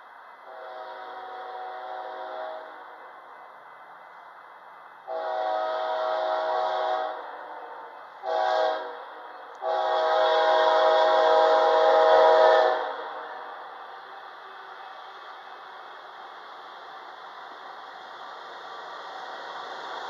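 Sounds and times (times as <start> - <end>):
locomotive air horn blasts: 0.4 - 2.8, 5.1 - 13.5.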